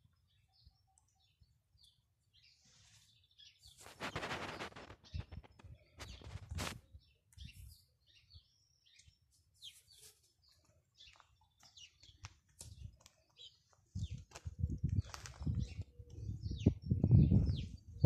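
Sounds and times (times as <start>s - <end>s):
small birds chirping: 0.0s - 18.0s
brief rustles: 3.7s - 6.8s.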